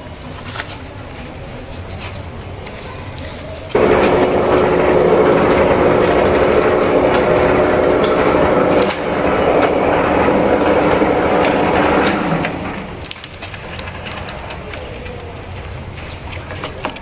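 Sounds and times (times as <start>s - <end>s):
constant machine hum: 2.2s - 17.0s
metal lathe cutting: 3.7s - 14.2s.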